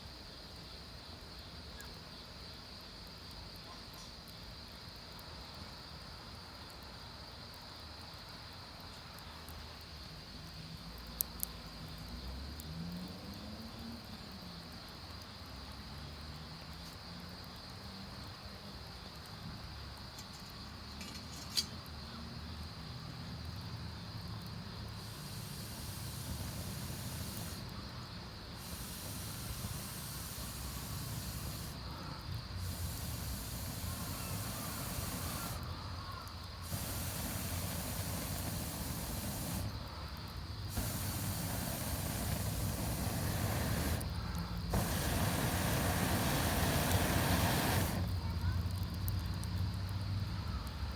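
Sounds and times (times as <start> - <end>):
campfire hissing: 0.0 - 50.9
fire popping: 6.3 - 15.8, 23.4 - 50.9.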